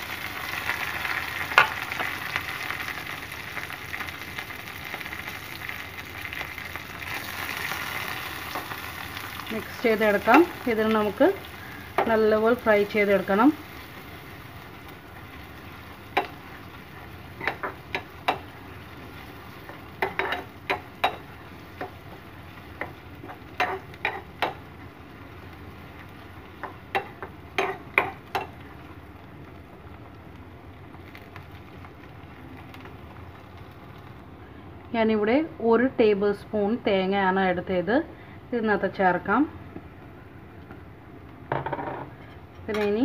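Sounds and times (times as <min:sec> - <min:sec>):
faint sizzle of frying: 0:00.0 - 0:43.0
metal spoon clinking and scraping pan: 0:20.0 - 0:21.9, 0:22.8 - 0:24.6, 0:26.9 - 0:28.5.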